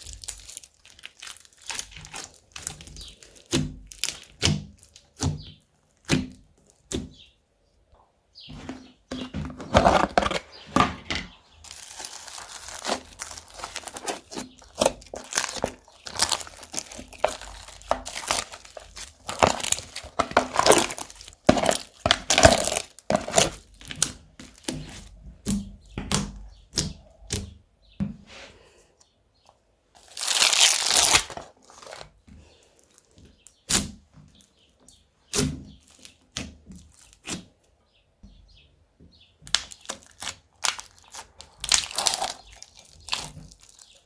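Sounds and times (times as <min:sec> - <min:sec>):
slime squishing sticky pops: 0:00.0 - 0:07.2.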